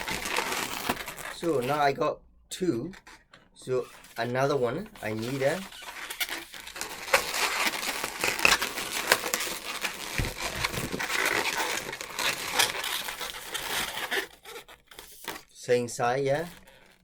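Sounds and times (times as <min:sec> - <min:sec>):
rubber balloons crinkling and squeaking: 0:00.0 - 0:17.0.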